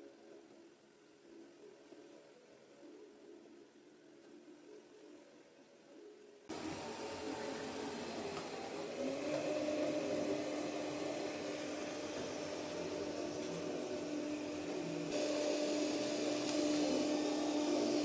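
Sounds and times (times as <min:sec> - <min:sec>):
robot vacuum motor whirring: 0:06.5 - 0:18.0
steady hum: 0:06.5 - 0:18.0.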